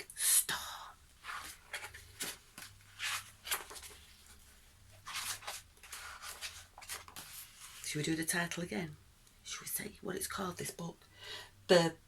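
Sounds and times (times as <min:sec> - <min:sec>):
paper book rustling: 0:01.2 - 0:08.6.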